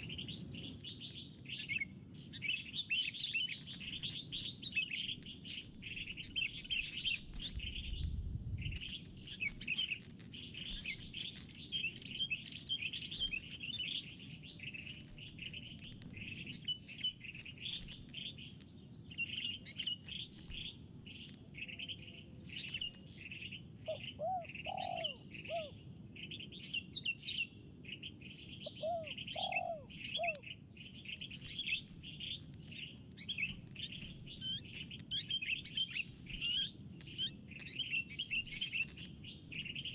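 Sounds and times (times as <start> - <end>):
lower arching bird calls: 21.6 - 39.9.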